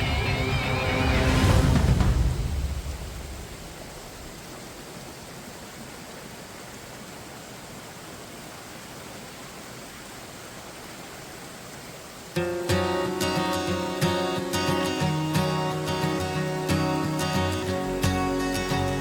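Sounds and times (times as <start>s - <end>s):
music: 0.0s - 2.8s, 12.4s - 19.0s
waterfall roaring: 0.0s - 19.0s.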